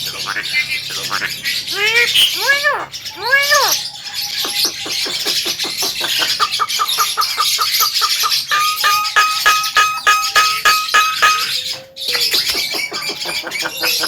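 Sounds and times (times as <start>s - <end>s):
bird singing harsh call: 0.0s - 14.0s
steady whistled note: 8.5s - 11.7s.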